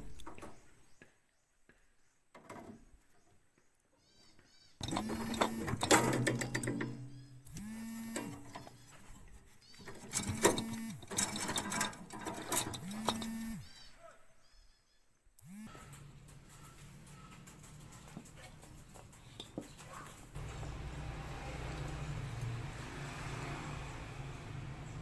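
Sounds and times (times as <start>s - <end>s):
clicks: 4.8s - 8.8s, 9.7s - 13.6s
small electric motor spinning: 7.5s - 8.4s, 10.2s - 11.1s, 12.8s - 13.7s.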